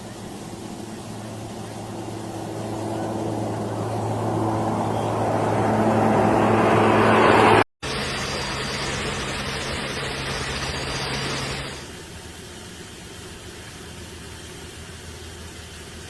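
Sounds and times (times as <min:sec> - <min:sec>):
rushing noise: 0:00.0 - 0:11.9
aircraft engine hum: 0:00.0 - 0:16.0.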